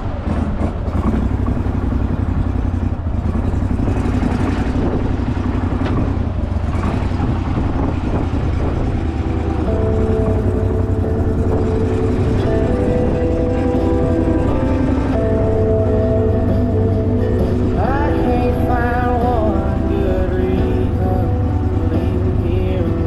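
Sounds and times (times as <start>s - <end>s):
boat motor running: 0.0s - 23.0s.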